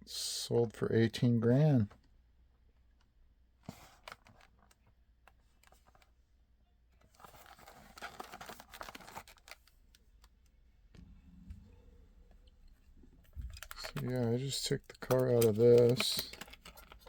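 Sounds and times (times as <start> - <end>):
packaging crinkling and clicking: 7.1 - 10.4, 13.3 - 17.0.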